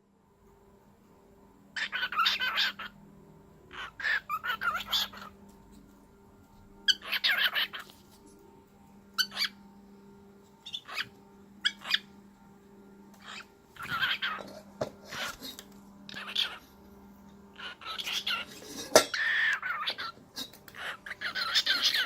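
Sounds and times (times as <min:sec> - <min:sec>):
cockatiel chirping: 0:01.8 - 0:02.9, 0:03.7 - 0:05.3, 0:06.9 - 0:07.9, 0:09.2 - 0:09.6, 0:10.6 - 0:12.1, 0:13.2 - 0:14.4, 0:16.1 - 0:16.6, 0:17.6 - 0:20.1, 0:20.8 - 0:22.0.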